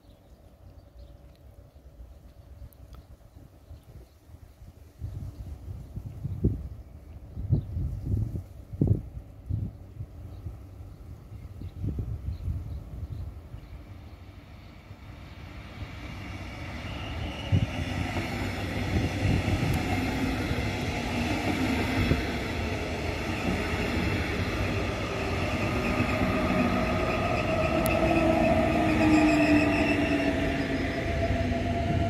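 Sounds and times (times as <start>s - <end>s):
train wheels rumbling on track: 6.1s - 32.0s
whining tones: 23.1s - 32.0s.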